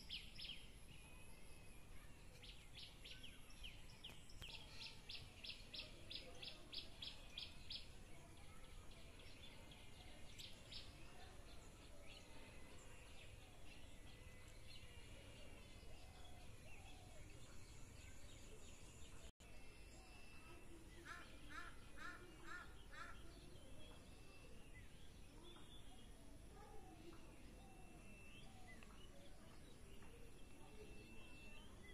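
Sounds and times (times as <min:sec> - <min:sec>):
low background noise: 0:00.0 - 0:31.9
distant birds calling: 0:21.0 - 0:24.8.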